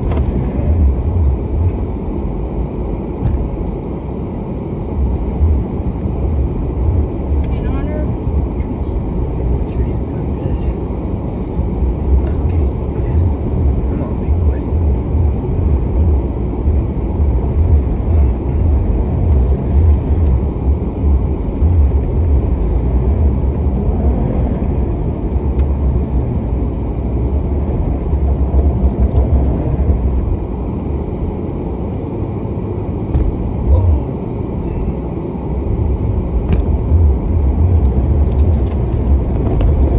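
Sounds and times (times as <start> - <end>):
engine idling inside cab: 0.0 - 39.9.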